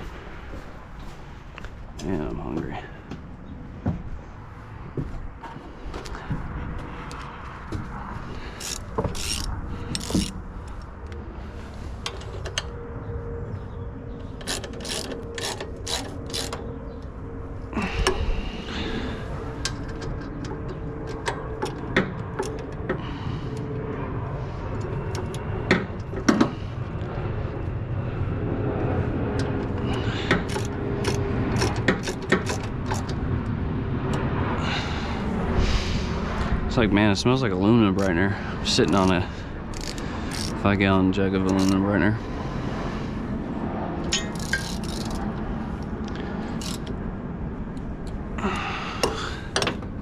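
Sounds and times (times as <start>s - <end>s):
hand tools clicking and clinking: 14.3s - 16.6s, 30.3s - 33.2s, 39.7s - 40.6s, 44.0s - 45.3s.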